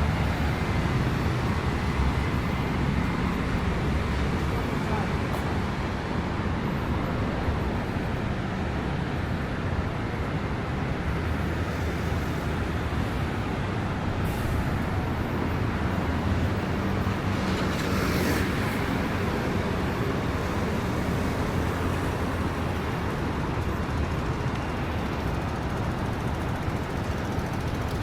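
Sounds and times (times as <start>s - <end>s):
traffic engines rumbling: 0.0s - 28.0s
tyres hissing on wet road: 14.1s - 23.4s.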